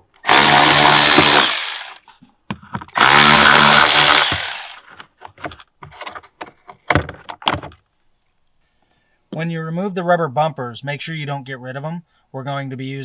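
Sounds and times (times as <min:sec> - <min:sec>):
impact driver spinning: 0:00.2 - 0:02.1, 0:02.8 - 0:05.4
handling clicks and knocks: 0:04.4 - 0:07.8.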